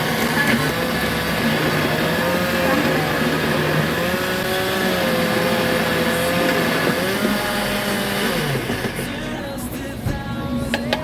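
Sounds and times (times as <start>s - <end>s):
motor running: 0.0s - 10.0s.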